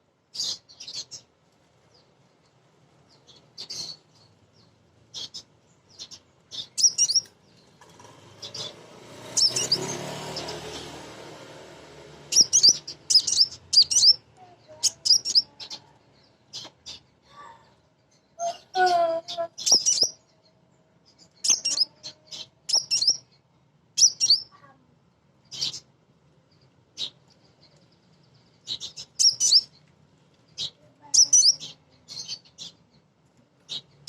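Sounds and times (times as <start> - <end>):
sunbird high chirps: 0.3 - 1.3, 3.1 - 7.8, 8.4 - 11.1, 12.3 - 17.5, 18.1 - 23.4, 24.0 - 24.7, 25.4 - 25.9, 26.6 - 29.8, 30.5 - 33.0.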